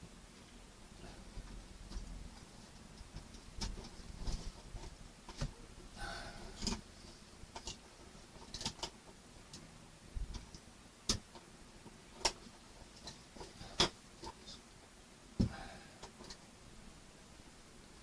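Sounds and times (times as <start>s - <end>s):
plastic parts clicking: 8.4s - 9.6s.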